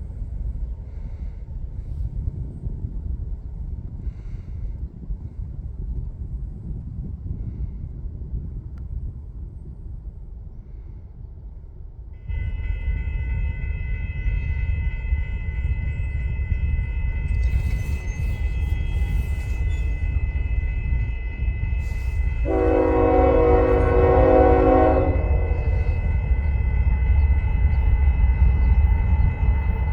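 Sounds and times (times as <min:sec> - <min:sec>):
low rumble: 0:00.0 - 0:29.9
locomotive air horn: 0:12.2 - 0:26.7.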